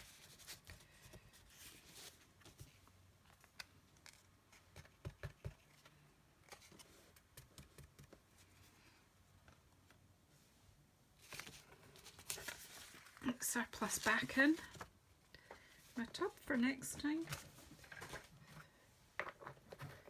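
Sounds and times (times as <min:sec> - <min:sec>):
paper rustling: 0:11.2 - 0:20.0.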